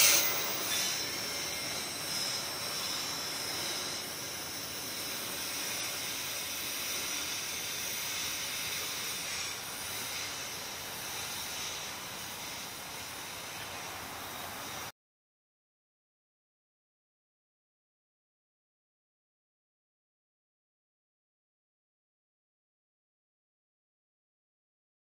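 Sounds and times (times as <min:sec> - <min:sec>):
freight train wheels on rail: 0:00.0 - 0:14.9.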